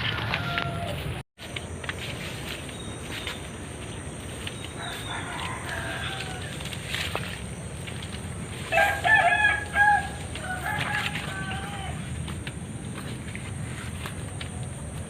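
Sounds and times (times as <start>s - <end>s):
distant rooster crowing: 0.0s - 1.2s, 4.6s - 7.4s, 8.5s - 12.4s.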